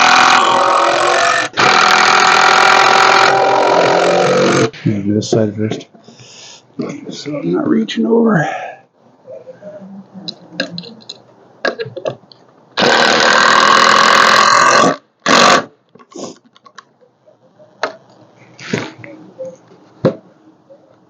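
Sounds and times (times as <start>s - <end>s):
power driver buzzing: 0.0s - 4.7s, 12.8s - 15.7s.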